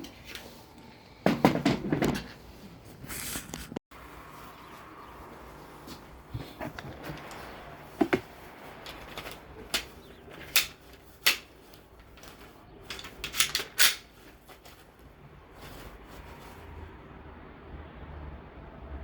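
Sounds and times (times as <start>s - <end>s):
pistol parts clicking and knocking: 8.9s - 11.5s, 12.9s - 14.1s.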